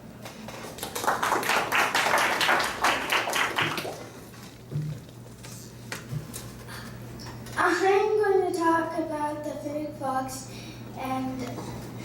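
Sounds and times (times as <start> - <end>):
low steady hum: 0.0 - 12.0
hands clapping: 0.2 - 4.1.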